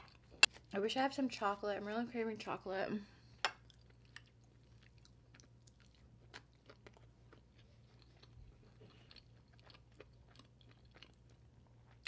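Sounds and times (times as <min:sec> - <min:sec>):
wet chewing mouth sounds: 0:03.6 - 0:12.0.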